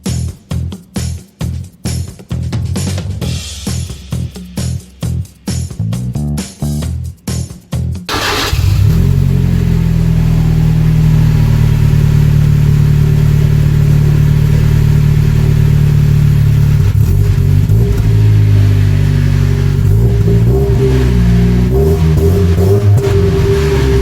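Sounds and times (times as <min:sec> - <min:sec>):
loud car exhaust note: 0:08.1 - 0:24.0.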